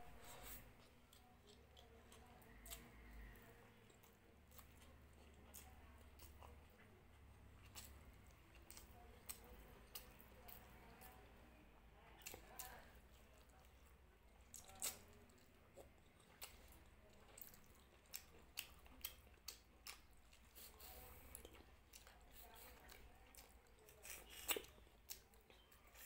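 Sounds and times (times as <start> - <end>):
person chewing with wet smacks: 0.1 - 26.0.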